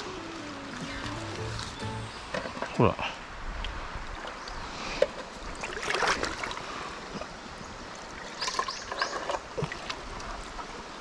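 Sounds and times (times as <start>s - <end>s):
stream water trickling: 0.0s - 11.0s
water splashing and sloshing: 0.0s - 11.0s.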